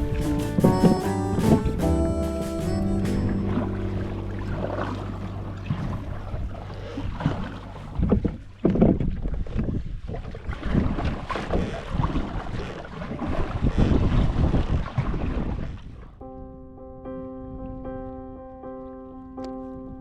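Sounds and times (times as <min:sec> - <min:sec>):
music: 0:00.0 - 0:06.6, 0:16.2 - 0:20.0
wind buffeting microphone: 0:03.1 - 0:18.5.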